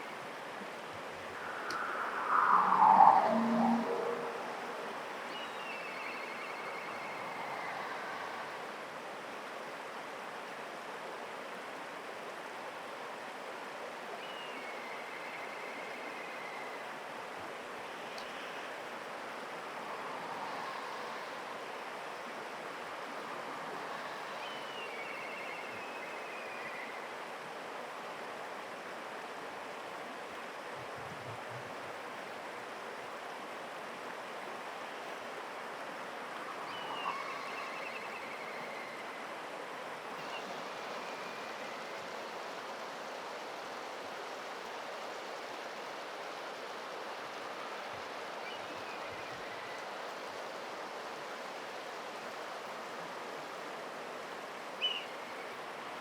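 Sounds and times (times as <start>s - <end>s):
rushing background noise: 1.0s - 9.0s
kite whistling call: 1.4s - 5.0s.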